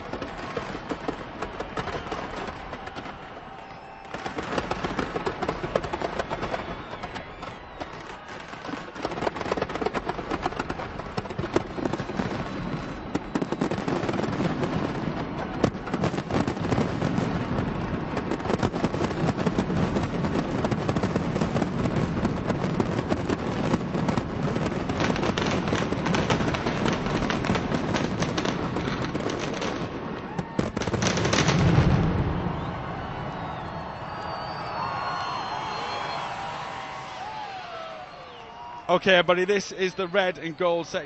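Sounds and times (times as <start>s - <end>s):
fireworks bursts and crackling: 0.0s - 41.0s.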